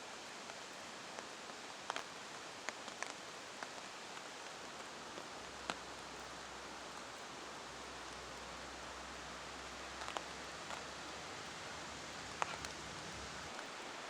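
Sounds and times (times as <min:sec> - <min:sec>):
steady rain hiss: 0:00.0 - 0:14.0
raindrops ticking: 0:00.3 - 0:13.8.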